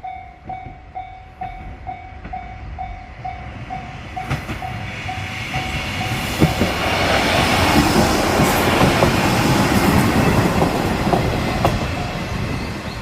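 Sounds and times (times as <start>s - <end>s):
crossing warning bell dinging: 0.0s - 6.9s, 9.8s - 13.0s
diesel train passing: 0.0s - 13.0s
wheels clacking over rail joints: 5.6s - 13.0s.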